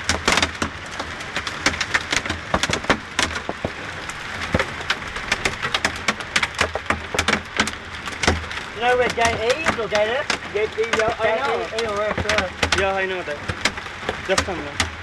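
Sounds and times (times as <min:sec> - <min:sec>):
hailstones clicking and knocking: 0:00.0 - 0:15.0
heavy rain hiss: 0:00.0 - 0:15.0.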